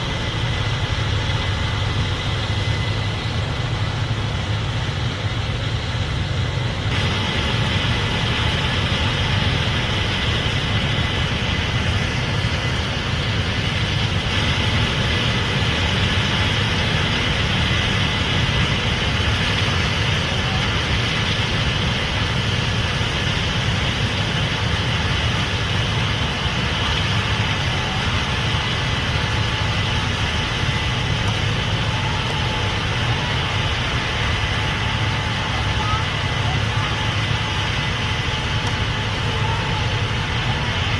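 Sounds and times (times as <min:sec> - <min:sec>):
combine harvester engine drone: 0:00.0 - 0:40.9
faint whining tones: 0:26.4 - 0:40.9.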